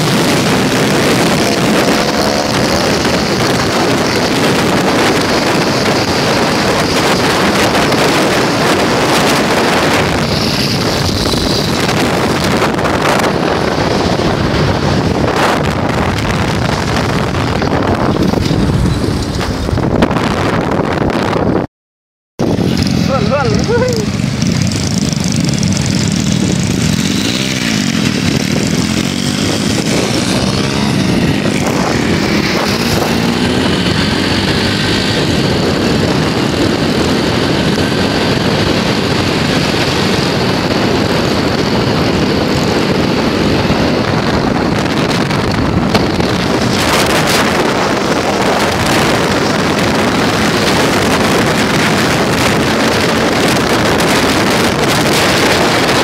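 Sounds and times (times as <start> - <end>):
small engine running: 22.6 - 35.9.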